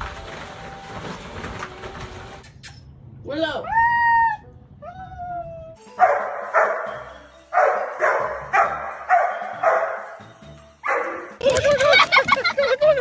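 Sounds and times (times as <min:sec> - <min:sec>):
dog barking: 0:06.0 - 0:07.0, 0:07.6 - 0:10.2, 0:10.8 - 0:11.3.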